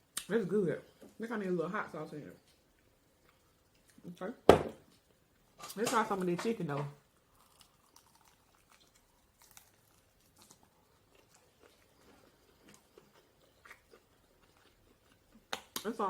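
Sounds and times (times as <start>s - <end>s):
faint chewing crunches: 2.5s - 4.2s, 7.2s - 15.9s.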